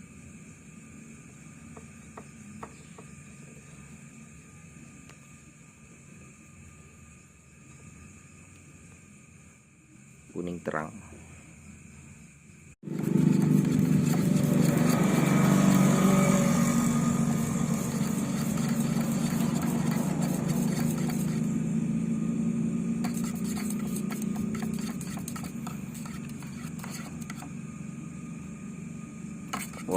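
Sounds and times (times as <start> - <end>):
machine humming and hissing: 11.2 - 29.9.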